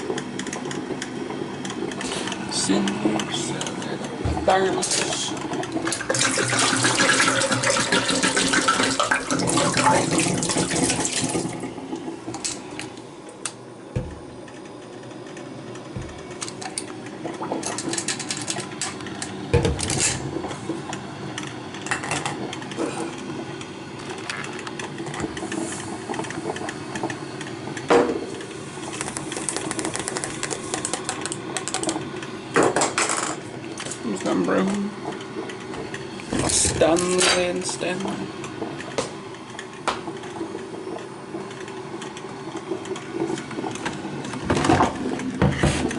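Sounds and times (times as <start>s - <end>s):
water running: 0.8s - 12.6s, 33.4s - 38.9s.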